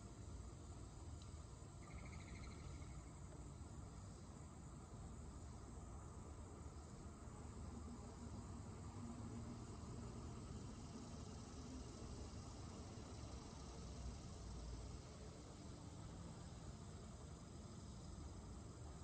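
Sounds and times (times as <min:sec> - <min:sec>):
insects trilling: 0:01.8 - 0:03.3.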